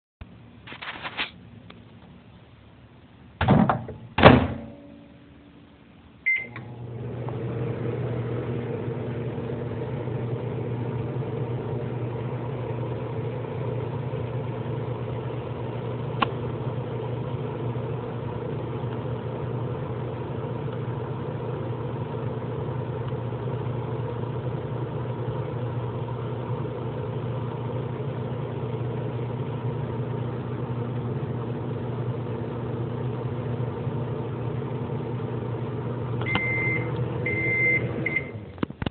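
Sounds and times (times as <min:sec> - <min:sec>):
microwave oven humming: 0:03.4 - 0:38.9
keypad beep: 0:06.3 - 0:06.6, 0:36.3 - 0:38.4.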